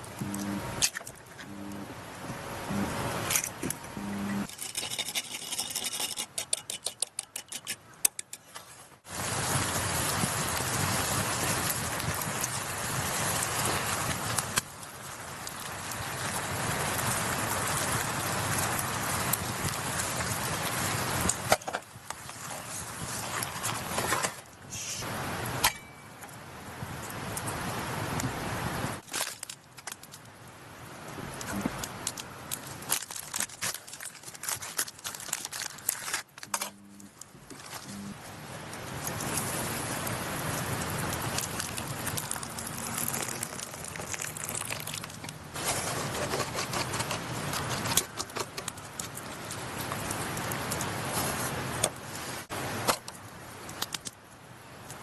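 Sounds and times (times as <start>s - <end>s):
steady rushing hiss: 8.8s - 25.6s, 37.0s - 53.8s.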